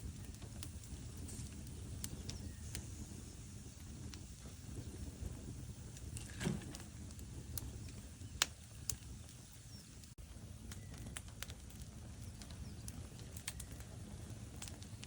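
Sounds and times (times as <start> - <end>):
log fire crackling: 0.0 - 15.0.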